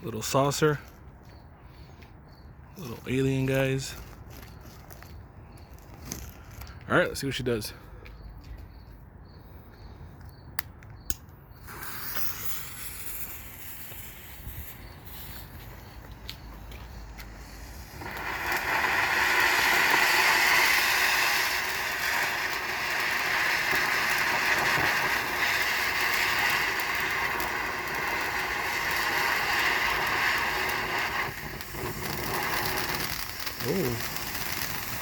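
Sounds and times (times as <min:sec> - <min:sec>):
fountain firework hissing: 0:11.6 - 0:16.1, 0:16.8 - 0:35.0.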